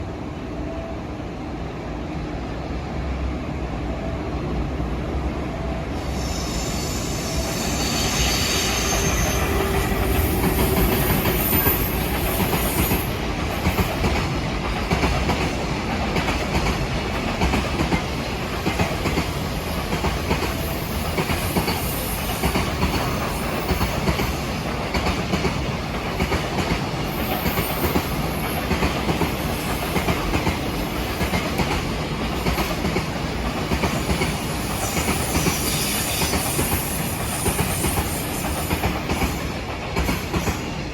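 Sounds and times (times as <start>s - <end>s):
freight train rumbling: 0.0s - 40.9s
train wheels squealing: 6.0s - 13.9s, 19.7s - 24.6s, 27.1s - 31.7s, 33.8s - 40.8s.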